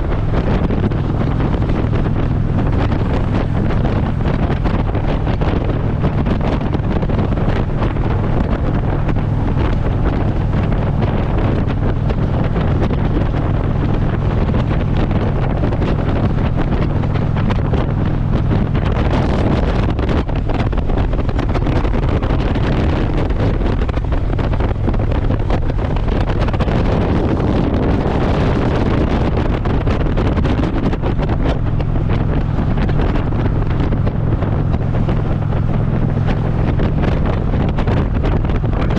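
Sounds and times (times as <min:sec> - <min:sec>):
motorcycle engine drone: 0:00.0 - 0:38.9
wind buffeting microphone: 0:00.0 - 0:38.9.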